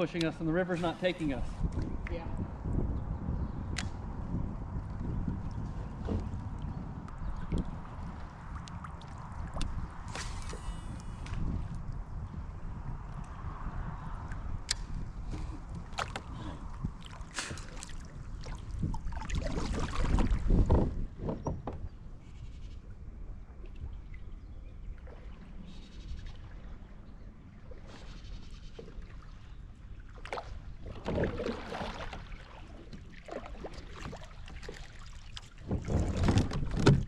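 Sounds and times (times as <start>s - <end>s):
wind buffeting microphone: 0.0s - 37.0s
gear knocking against kayak: 35.7s - 37.0s.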